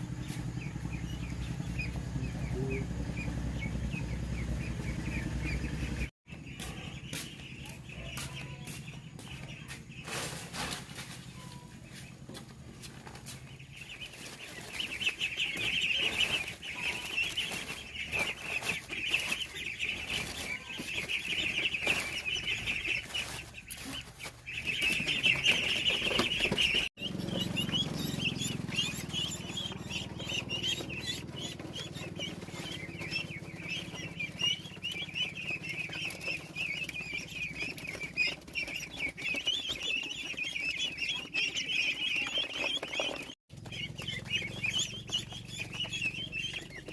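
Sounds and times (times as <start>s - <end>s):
low hum: 0.0s - 18.6s
ducklings peeping: 0.0s - 46.9s.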